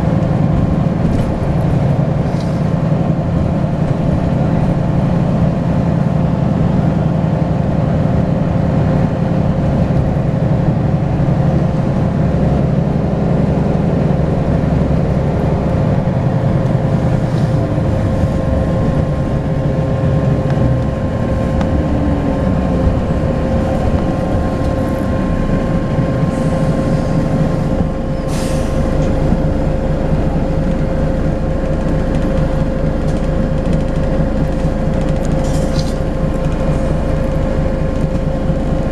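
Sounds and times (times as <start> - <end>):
bus diesel engine: 0.0 - 38.9.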